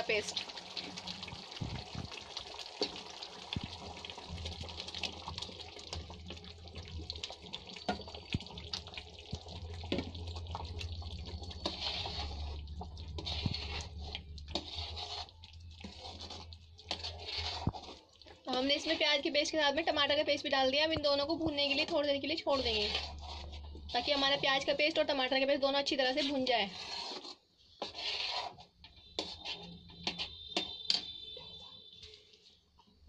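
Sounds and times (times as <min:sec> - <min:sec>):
onion paste frying in oil: 0:00.0 - 0:32.6
metal spoon scraping a pan: 0:04.7 - 0:20.0, 0:21.2 - 0:31.7.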